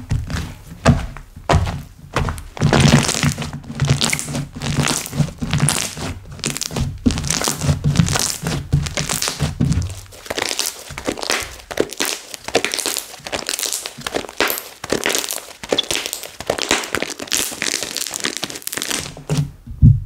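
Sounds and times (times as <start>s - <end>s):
slime crackling and popping: 2.4s - 19.4s
soft low thuds: 19.4s - 20.0s.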